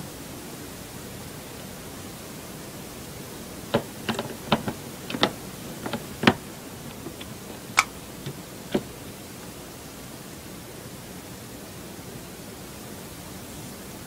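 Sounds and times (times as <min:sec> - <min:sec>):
steady hiss: 0:00.0 - 0:14.0
hard drive clicking and knocking: 0:03.5 - 0:09.5.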